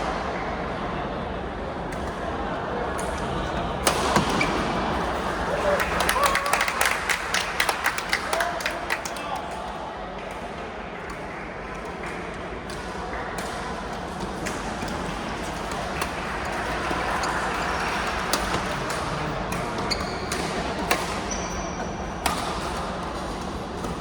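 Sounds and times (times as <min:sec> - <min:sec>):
short high squeaks: 0:21.2 - 0:21.9.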